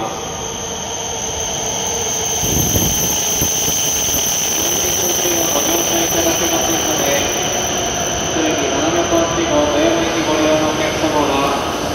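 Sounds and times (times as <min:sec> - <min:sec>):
wavering squeal: 0:00.0 - 0:11.3
train pulling into platform: 0:00.0 - 0:11.9
rush of air and rolling noise: 0:02.3 - 0:04.8.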